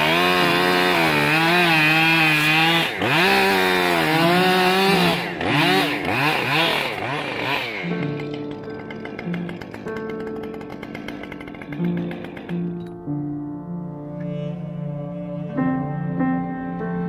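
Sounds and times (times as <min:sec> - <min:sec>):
chainsaw revving: 0:00.0 - 0:13.1.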